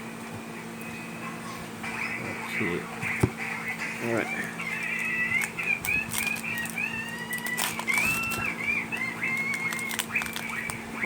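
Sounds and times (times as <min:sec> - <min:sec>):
foil pack crinkling: 0:04.3 - 0:10.8
birds whistling calls: 0:04.3 - 0:11.0.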